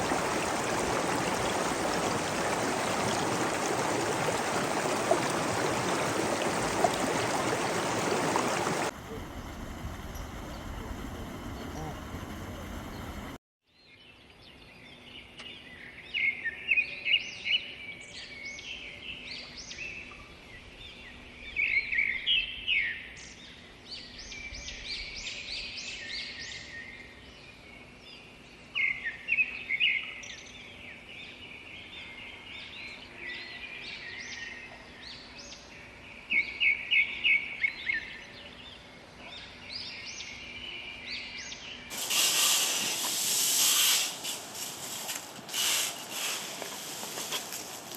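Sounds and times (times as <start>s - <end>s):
birds chirping: 0.0s - 13.3s.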